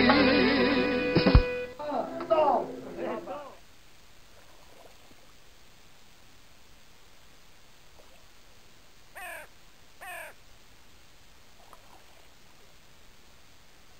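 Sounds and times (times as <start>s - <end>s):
background hiss: 0.0s - 13.9s
bird calls: 9.2s - 10.4s.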